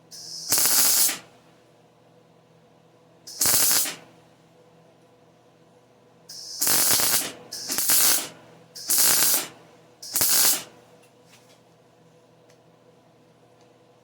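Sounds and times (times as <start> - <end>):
welding arc crackling: 0.2 - 1.3, 3.3 - 4.0, 6.3 - 10.7.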